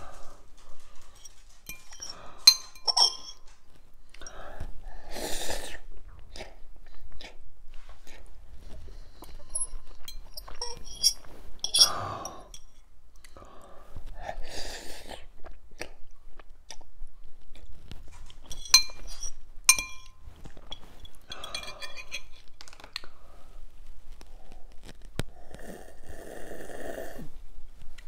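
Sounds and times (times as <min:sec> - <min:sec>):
metal fork clinking on glass bowl: 0:01.2 - 0:03.6, 0:09.5 - 0:12.8, 0:18.4 - 0:22.5
person chewing noodles: 0:15.0 - 0:17.8.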